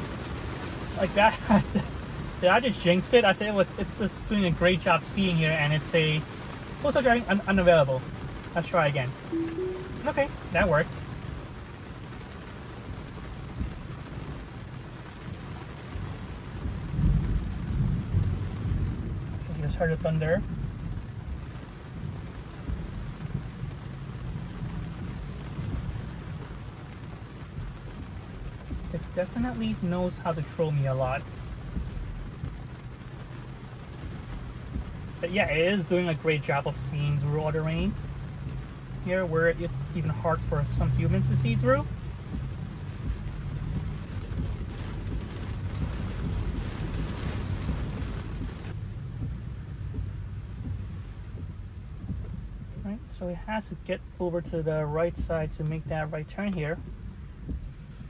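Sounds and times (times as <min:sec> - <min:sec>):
heavy rain on car roof: 0:00.0 - 0:58.0
low road rumble: 0:00.0 - 0:58.0
low rumble: 0:39.7 - 0:55.9.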